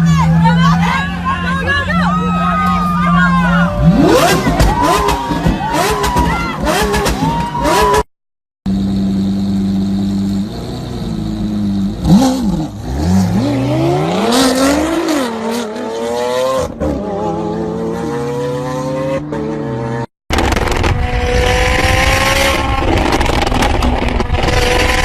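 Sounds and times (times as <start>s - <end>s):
car engine revving and accelerating: 3.7s - 8.0s, 10.1s - 25.0s.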